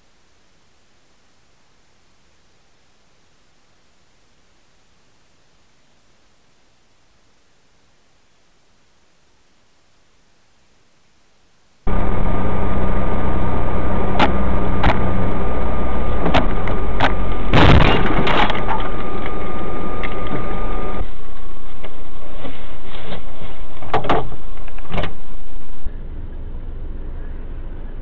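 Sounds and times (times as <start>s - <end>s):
car road and engine noise: 11.9s - 22.0s, 23.8s - 28.0s
loud collision impact: 16.2s - 18.9s.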